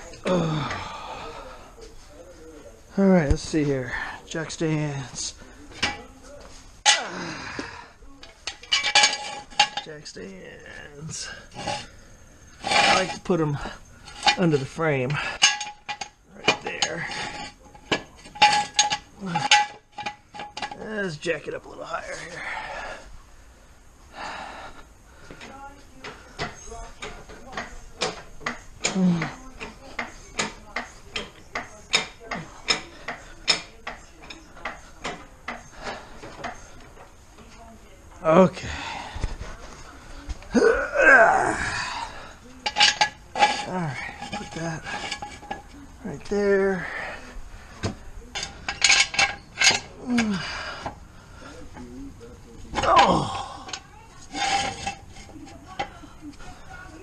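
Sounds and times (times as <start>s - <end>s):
metal knocks clattering: 8.2s - 10.0s, 12.6s - 20.8s, 47.8s - 50.3s
metal jack stands clanking: 8.2s - 10.1s, 12.6s - 20.8s, 42.6s - 45.7s, 47.8s - 50.3s.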